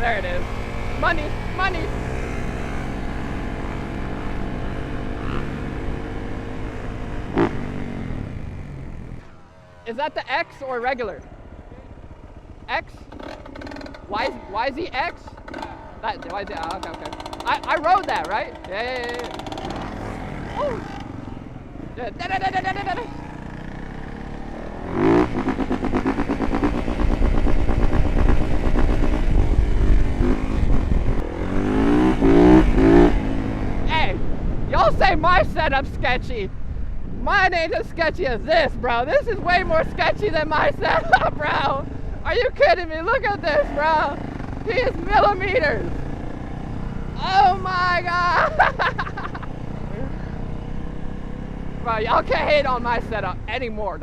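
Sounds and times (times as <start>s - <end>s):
dirt bike engine idling: 0.0s - 53.9s.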